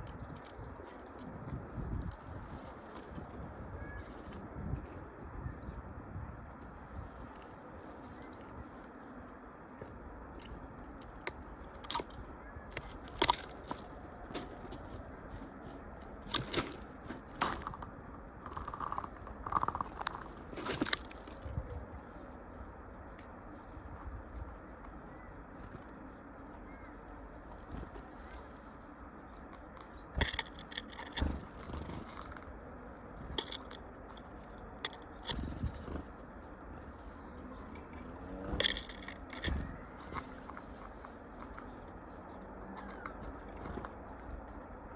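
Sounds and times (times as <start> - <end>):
birds tapping at feeder: 9.8 - 15.1, 16.3 - 21.5, 25.6 - 44.8.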